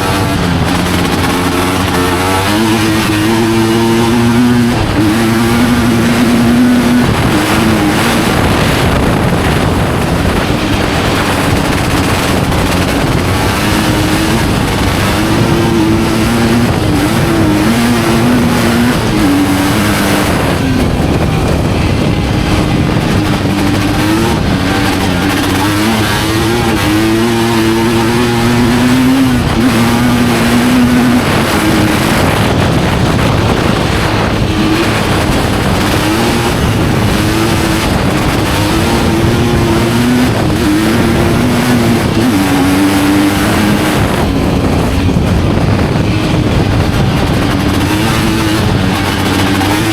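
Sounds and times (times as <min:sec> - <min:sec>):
motorcycle engine running hard: 0:00.0 - 0:49.9
steady rushing noise: 0:00.0 - 0:49.9.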